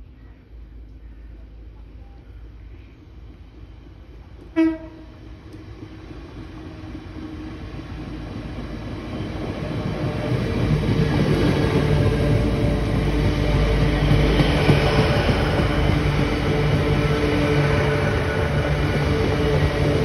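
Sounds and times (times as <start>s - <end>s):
train passing at speed: 0.0s - 20.0s
train horn: 4.5s - 5.2s.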